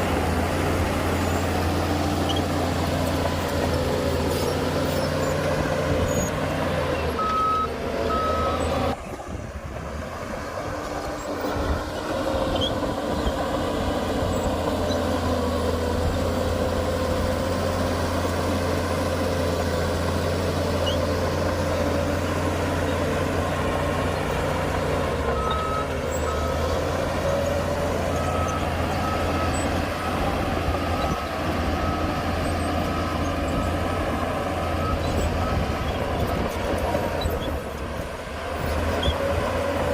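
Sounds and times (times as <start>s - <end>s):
heavy diesel machinery running: 0.0s - 39.9s
reversing alarm beeping: 7.2s - 8.7s.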